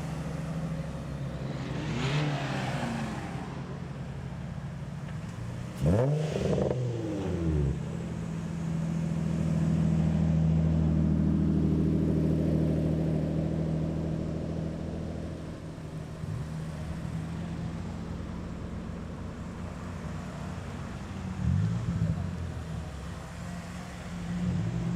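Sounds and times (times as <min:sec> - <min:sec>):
car driving past: 0:01.0 - 0:04.5.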